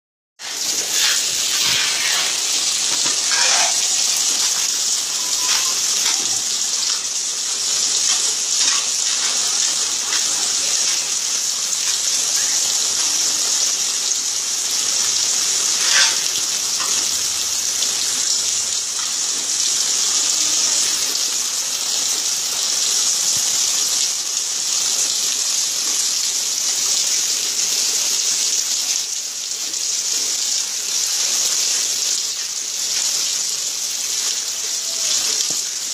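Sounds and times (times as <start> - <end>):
water drips and splashes: 0.4 - 12.8
heavy rain pouring: 0.4 - 35.9.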